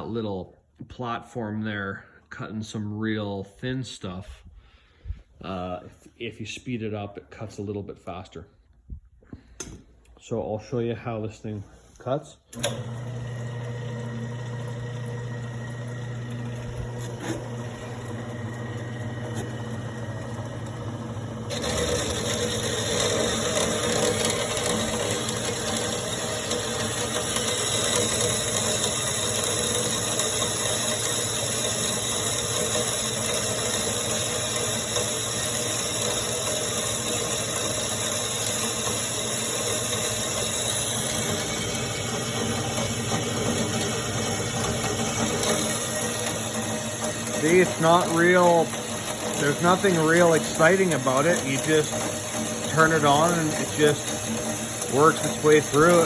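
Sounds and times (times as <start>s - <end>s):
bandsaw motor humming: 12.5s - 56.0s
bandsaw blade cutting metal: 17.0s - 17.7s, 21.5s - 42.1s, 42.8s - 56.0s.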